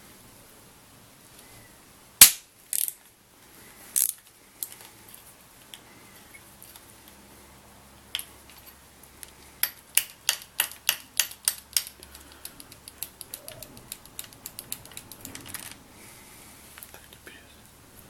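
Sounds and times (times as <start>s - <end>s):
ratchet wrench clicking: 4.0s - 4.8s.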